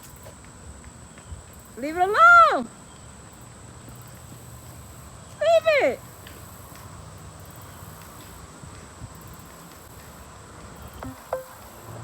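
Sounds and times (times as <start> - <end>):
faint high steady tone: 11.0 - 11.8.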